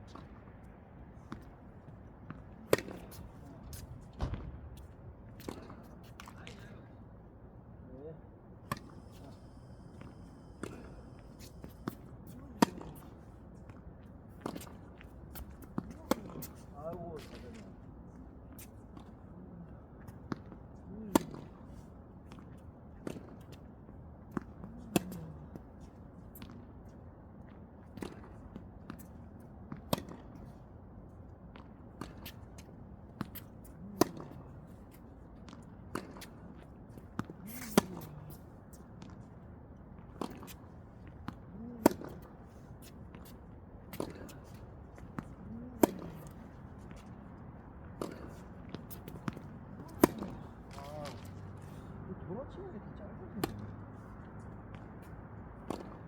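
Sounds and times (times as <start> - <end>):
soft ball knocks: 4.1 - 4.7
racket striking tennis ball: 43.9 - 46.4, 48.0 - 51.4, 55.7 - 56.0.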